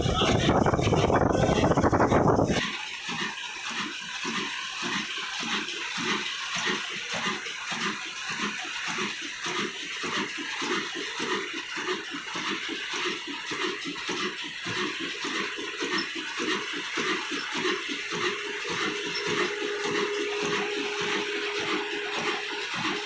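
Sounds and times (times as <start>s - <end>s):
diesel engine chugging: 0.0s - 2.6s, 7.2s - 23.0s.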